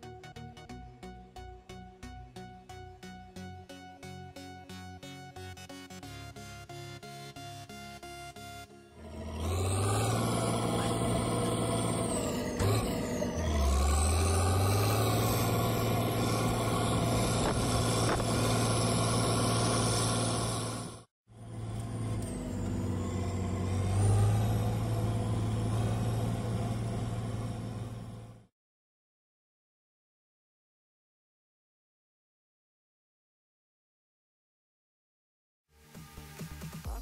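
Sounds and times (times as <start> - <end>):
tractor diesel engine running: 8.9 - 28.5.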